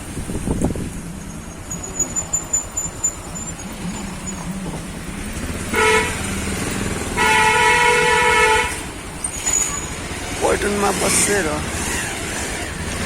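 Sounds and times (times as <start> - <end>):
motorcycle engine running: 2.4 - 13.0
vehicle horn: 5.7 - 6.4, 7.1 - 8.9.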